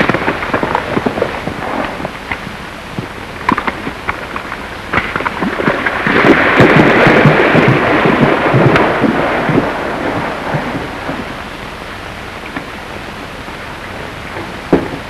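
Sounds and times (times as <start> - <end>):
horse hooves galloping: 3.0 - 11.3.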